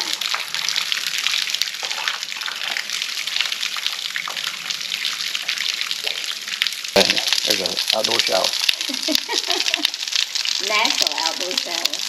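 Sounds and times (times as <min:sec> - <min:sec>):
waterfall splashing: 0:06.9 - 0:12.0.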